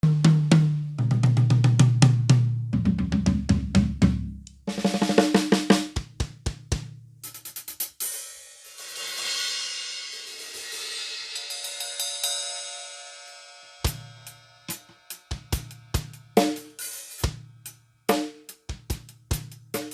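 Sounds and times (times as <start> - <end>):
tom drum fills: 0.0 - 7.9
snare drum strokes: 3.6 - 6.7.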